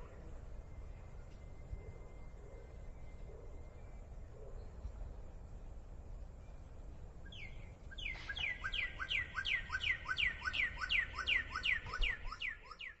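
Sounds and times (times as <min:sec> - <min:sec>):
bird whistling repeated notes: 0:07.3 - 0:13.0.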